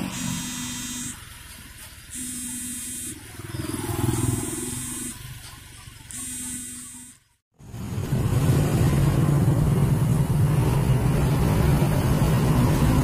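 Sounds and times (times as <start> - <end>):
pitched tone: 0.0 - 1.2, 2.1 - 7.4
truck engine revving: 0.0 - 6.7, 7.6 - 13.0.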